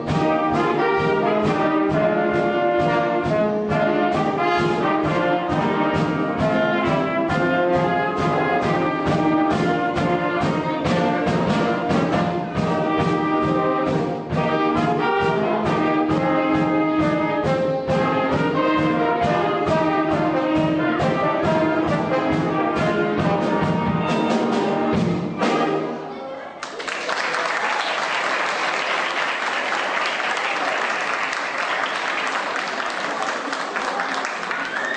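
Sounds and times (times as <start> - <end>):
steady percussion beat: 0.0 - 25.8
brass trumpets and trombones: 0.0 - 26.5
concert band playing: 0.0 - 34.9
audience applauding: 26.6 - 34.9.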